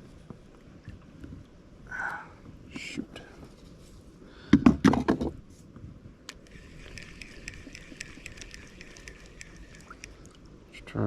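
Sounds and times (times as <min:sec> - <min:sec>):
light ticking: 0:06.2 - 0:10.5.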